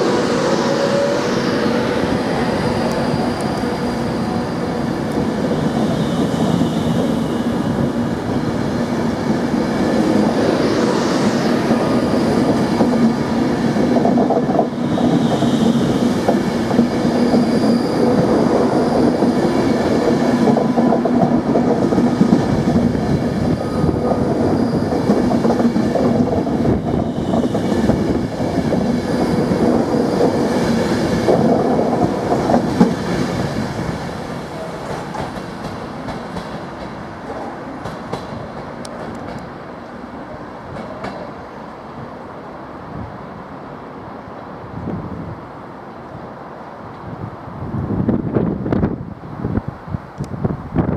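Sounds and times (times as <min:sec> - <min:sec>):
electric train passing: 0:00.0 - 0:50.9.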